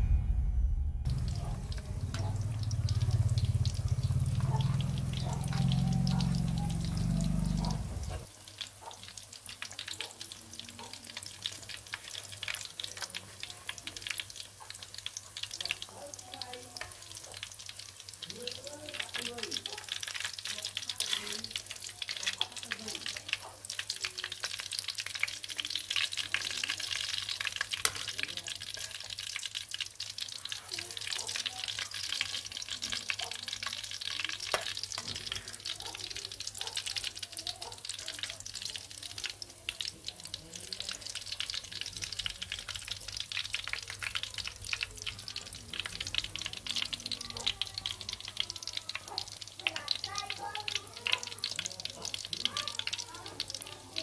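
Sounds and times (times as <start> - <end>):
patties sizzling in oil: 1.0 - 54.0
metal utensils scraping pan: 21.0 - 21.6.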